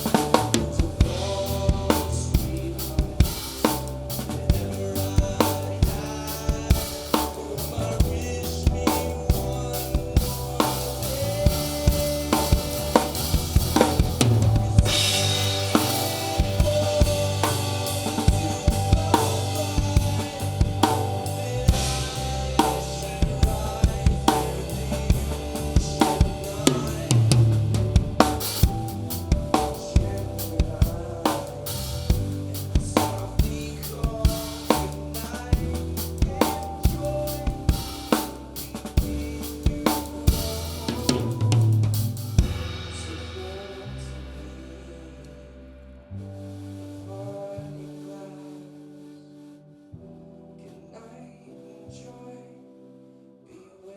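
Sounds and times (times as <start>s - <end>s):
drum kit hits: 0.0s - 35.0s, 39.0s - 44.5s
live band playing: 0.0s - 44.4s.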